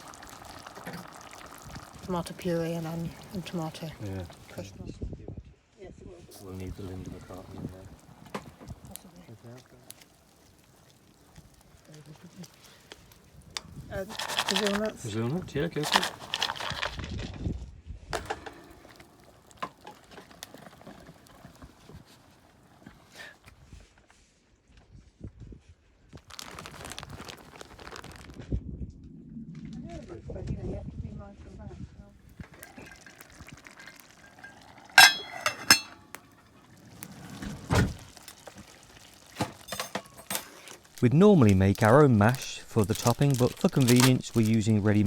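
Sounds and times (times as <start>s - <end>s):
utensils clicking on cooking pot: 0.0s - 4.7s, 6.4s - 17.0s, 18.2s - 23.5s, 32.4s - 37.2s, 38.2s - 45.0s
low rumble: 28.2s - 32.2s.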